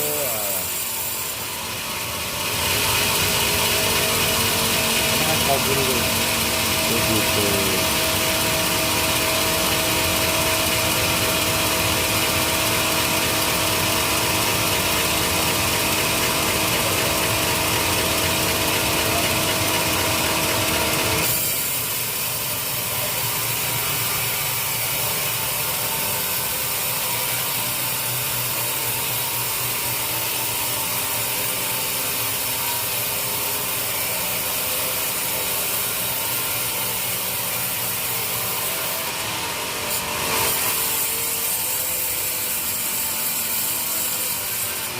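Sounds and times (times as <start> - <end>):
sawmill saw cutting wood: 0.0 - 44.9.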